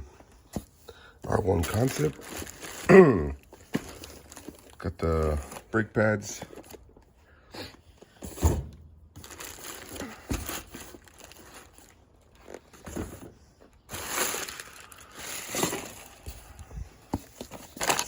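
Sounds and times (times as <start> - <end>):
packaging crinkling and rustling: 1.3 - 7.0, 9.2 - 18.0.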